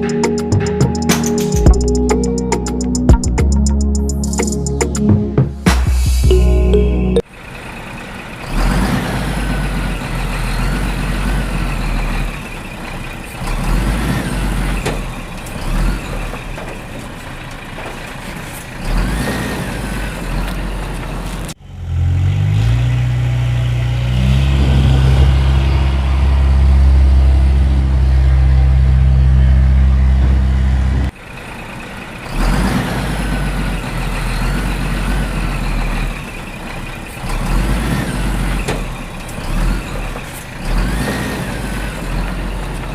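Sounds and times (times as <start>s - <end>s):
low engine drone rising in pitch: 0.0s - 7.3s, 22.0s - 31.1s
cartoon heavy engines running: 6.7s - 22.1s, 23.2s - 42.9s.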